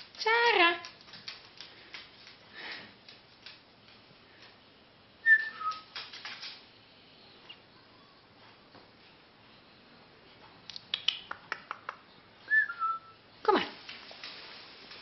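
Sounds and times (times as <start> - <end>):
rustling: 13.6 - 15.0.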